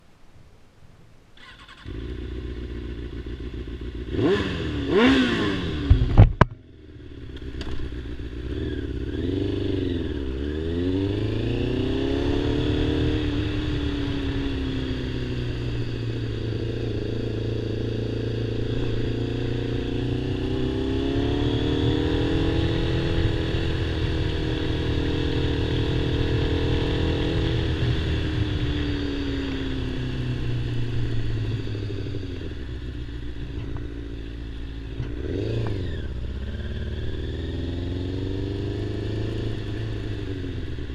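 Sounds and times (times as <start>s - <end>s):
motorcycle engine revving: 1.4s - 40.9s.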